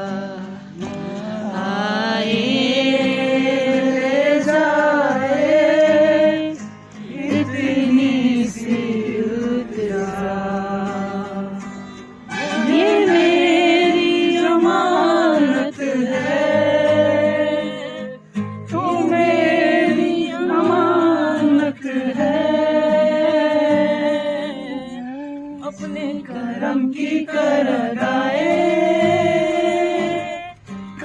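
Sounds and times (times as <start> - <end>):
people singing together: 0.0 - 31.0.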